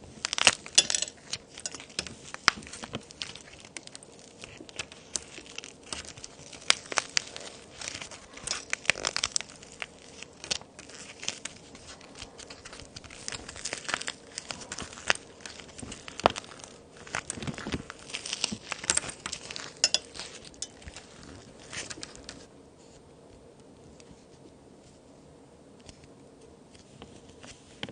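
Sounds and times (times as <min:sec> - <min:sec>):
plaster snapping and crumbling: 0:00.2 - 0:09.8.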